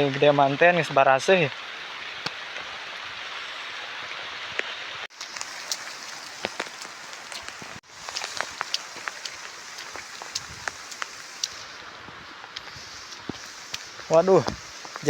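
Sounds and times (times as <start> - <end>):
heavy rain falling: 1.6 - 15.0
raindrops ticking sharply: 4.6 - 11.8, 12.5 - 15.0.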